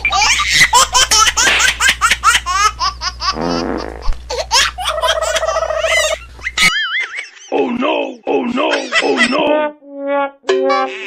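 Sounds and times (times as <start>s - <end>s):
steady low hum: 0.0s - 6.7s
high baby-like giggling: 4.3s - 6.8s
deeper laugh: 7.4s - 9.8s.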